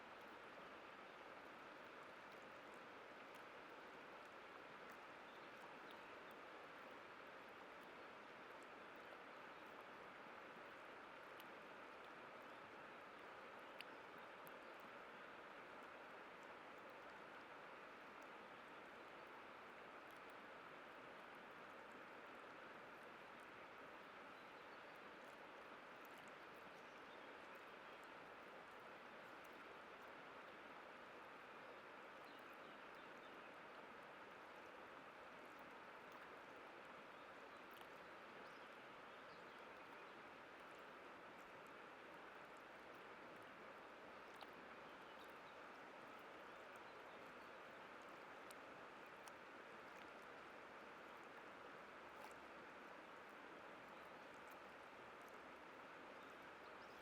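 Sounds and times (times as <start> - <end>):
faint ticks: 10.6 - 17.5, 19.1 - 20.4, 37.6 - 38.6, 48.0 - 50.4
faint high ticks: 13.2 - 14.9.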